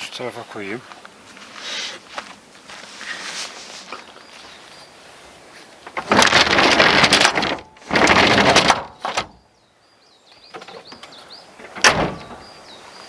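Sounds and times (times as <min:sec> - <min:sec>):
small birds chirping: 0:00.0 - 0:06.0, 0:09.0 - 0:13.0.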